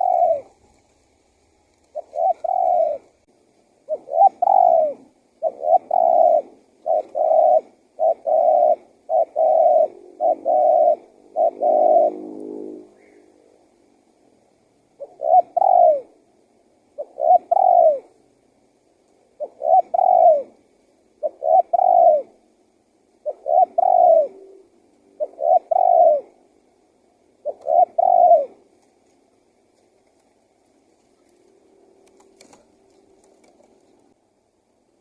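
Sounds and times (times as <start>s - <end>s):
dove cooing: 0.0s - 0.8s, 1.8s - 13.3s, 15.0s - 16.2s, 16.9s - 18.2s, 19.3s - 22.5s, 23.2s - 26.6s, 27.4s - 28.7s.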